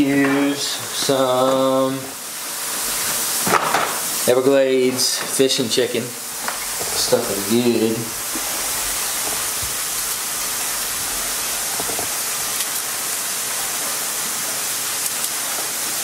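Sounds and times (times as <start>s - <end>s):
food sizzling in a pan: 0.0s - 16.0s
seasoning shaker ticks: 11.7s - 12.9s, 14.9s - 15.7s.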